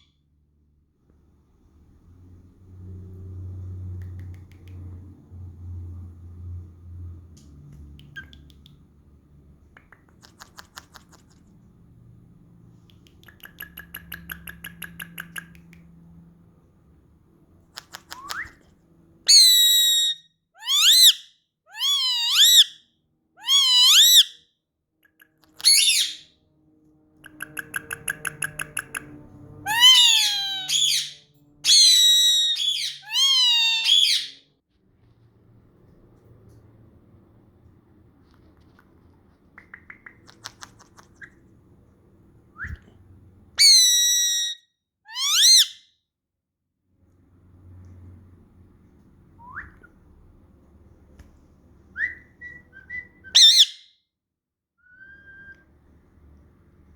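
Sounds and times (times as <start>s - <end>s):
parakeet soft clicks: 4.0s - 5.0s, 7.4s - 8.9s, 9.7s - 11.4s, 12.8s - 15.9s, 27.3s - 29.1s, 39.5s - 41.3s
parakeet whistled calls: 19.3s - 21.2s, 23.4s - 24.4s, 25.6s - 26.3s, 29.7s - 34.4s, 43.6s - 45.8s, 52.0s - 53.8s
parakeet harsh squawk: 19.3s - 22.8s, 23.4s - 24.4s, 25.6s - 26.3s, 29.6s - 34.4s, 43.6s - 45.8s, 53.4s - 53.8s.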